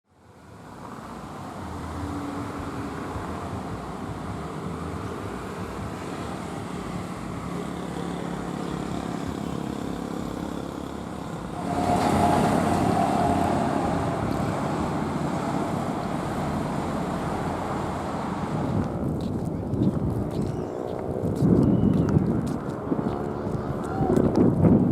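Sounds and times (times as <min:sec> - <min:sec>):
jet engines rumbling: 0:01.4 - 0:21.3
droning tone: 0:07.6 - 0:16.0.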